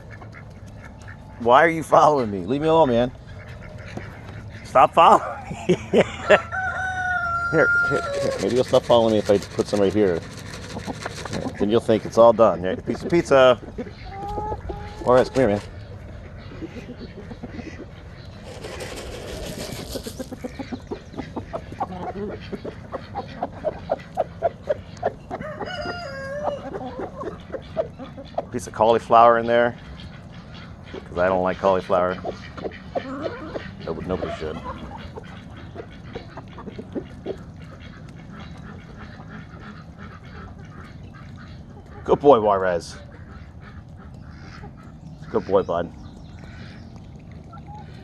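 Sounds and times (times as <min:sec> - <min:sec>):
chatter of ducks: 0:00.0 - 0:48.0
chickens clucking: 0:00.0 - 0:48.0
ducks quacking: 0:00.0 - 0:48.0.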